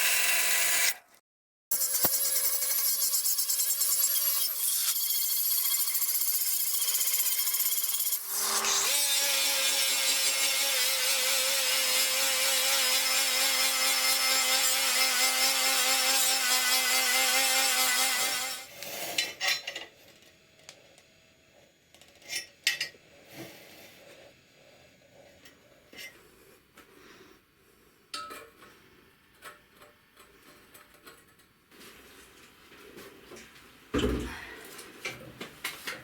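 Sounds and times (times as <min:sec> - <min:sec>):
power tool cutting: 0:00.0 - 0:01.0, 0:01.7 - 0:18.7.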